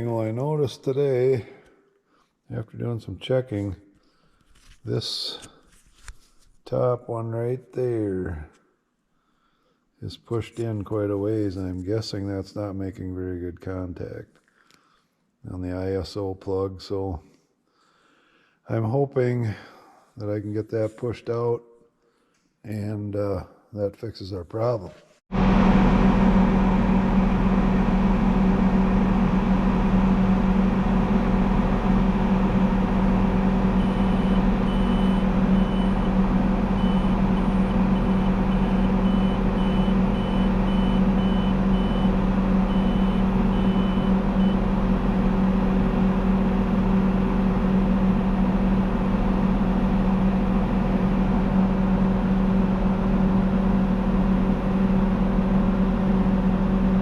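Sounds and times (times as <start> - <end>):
tractor engine running: 25.3 - 56.9.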